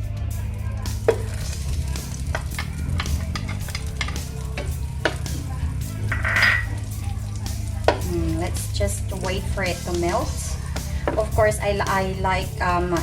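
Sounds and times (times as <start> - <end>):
butter sizzling in a frying pan: 0.4 - 13.0
utensil clicking and scraping pan: 1.1 - 5.4.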